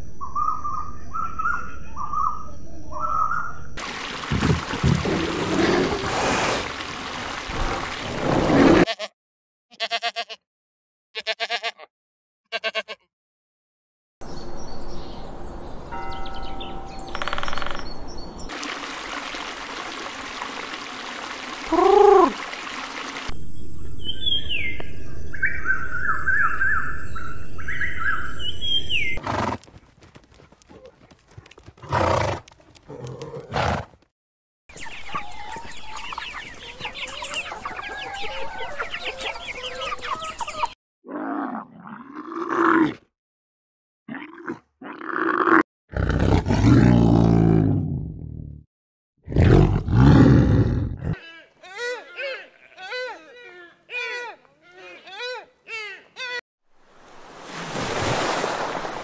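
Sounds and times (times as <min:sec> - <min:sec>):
bird chirps and calls: 0:00.2 - 0:03.8, 0:23.7 - 0:29.2.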